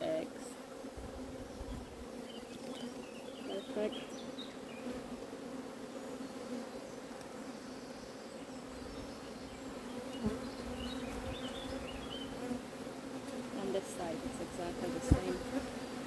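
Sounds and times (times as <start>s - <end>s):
bees buzzing: 0.0s - 16.0s.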